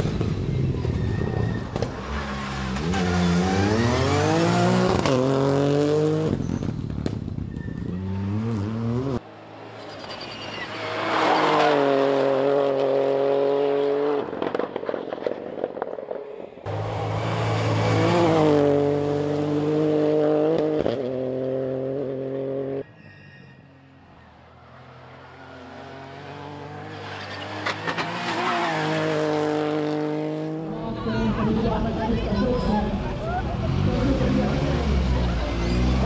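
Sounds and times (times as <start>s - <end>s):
rally cars revving past: 1.2s - 6.8s, 10.6s - 14.9s, 16.7s - 22.9s, 24.6s - 36.0s.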